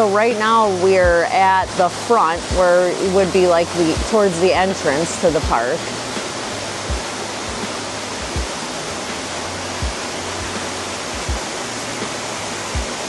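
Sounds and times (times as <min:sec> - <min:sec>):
waterfall rushing: 0:00.0 - 0:13.0
soft low thumps: 0:01.0 - 0:01.2, 0:03.9 - 0:13.0.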